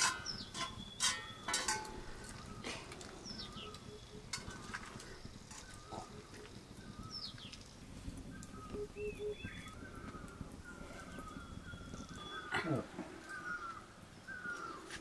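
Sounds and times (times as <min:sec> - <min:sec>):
birds whistling and chirping: 0:00.0 - 0:15.0.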